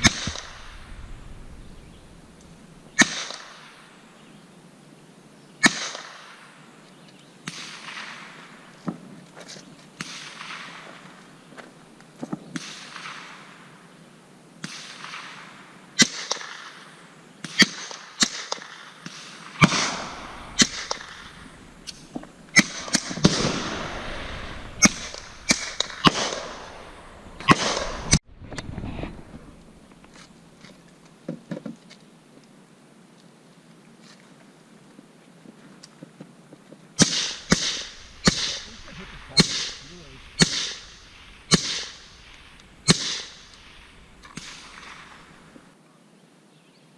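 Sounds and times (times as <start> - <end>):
gunshots with echo: 0.0 - 2.3, 17.6 - 21.8, 22.5 - 28.2, 37.0 - 45.5.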